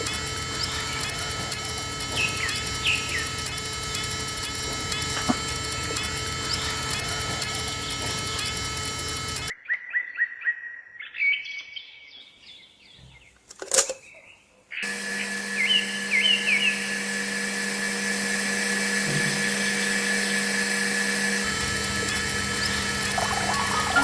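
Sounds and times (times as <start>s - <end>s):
electrical hum: 0.0s - 9.5s, 14.8s - 24.0s
small birds chirping: 0.0s - 9.5s, 21.4s - 24.0s.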